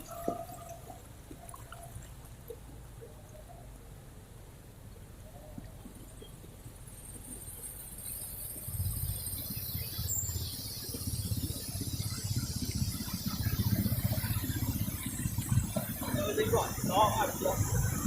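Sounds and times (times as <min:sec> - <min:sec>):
vehicle engine pulsing rumble: 0:00.0 - 0:18.0.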